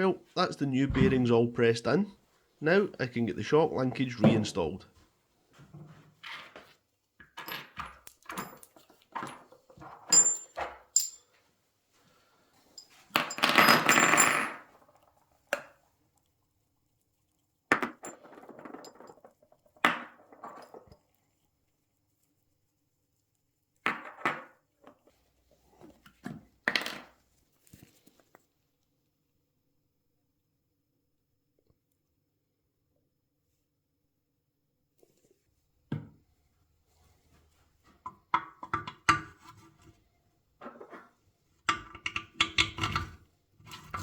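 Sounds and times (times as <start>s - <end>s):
metal parts and tools clinking: 7.4s - 11.3s.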